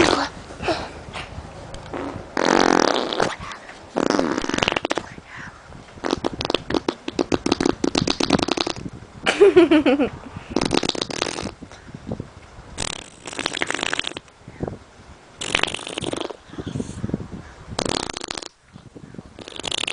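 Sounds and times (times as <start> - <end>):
raspberry blown on skin: 1.2 - 5.1, 6.0 - 8.9, 10.4 - 11.6, 12.8 - 14.2, 15.4 - 16.4, 17.8 - 18.6, 19.4 - 19.9.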